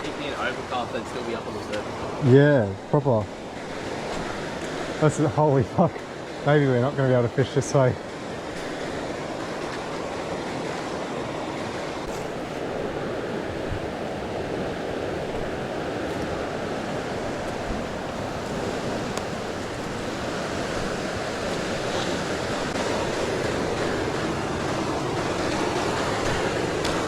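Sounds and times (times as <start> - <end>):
rushing water: 0.0 - 27.0
faint clicks: 17.5 - 20.4.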